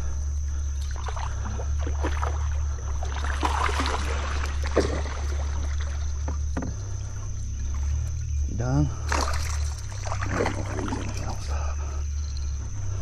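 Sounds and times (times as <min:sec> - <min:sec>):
steady low rumble: 0:00.0 - 0:13.0
water splashing around a kayak: 0:00.0 - 0:13.0.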